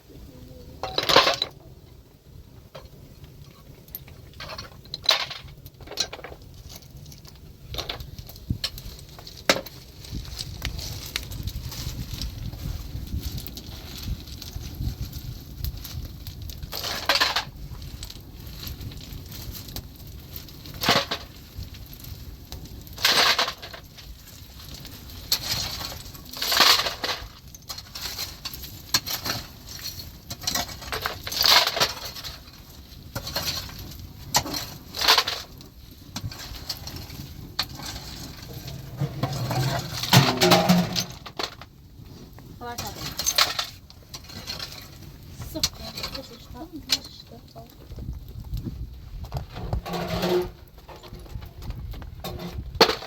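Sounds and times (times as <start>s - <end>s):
digging tool crunching gravel: 23.0s - 41.7s.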